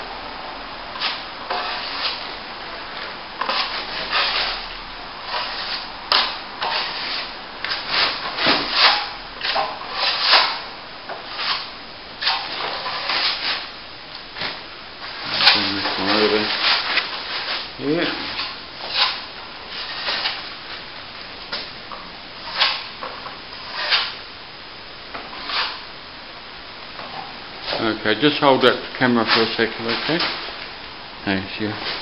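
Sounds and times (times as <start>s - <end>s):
plastering trowel scraping: 0.9s - 2.3s, 3.4s - 13.7s, 15.1s - 20.5s, 22.4s - 24.2s, 25.3s - 25.8s, 29.1s - 30.6s.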